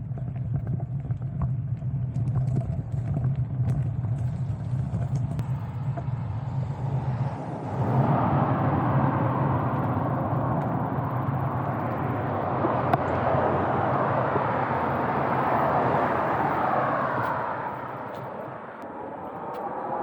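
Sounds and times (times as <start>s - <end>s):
low engine hum: 0.0s - 20.0s
road traffic rushing past: 5.4s - 20.0s.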